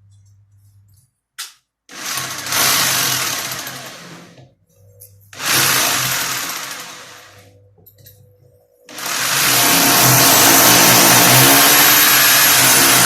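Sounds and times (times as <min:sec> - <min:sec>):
electric power tool running: 0:01.9 - 0:04.4, 0:05.4 - 0:07.5, 0:08.9 - 0:13.0.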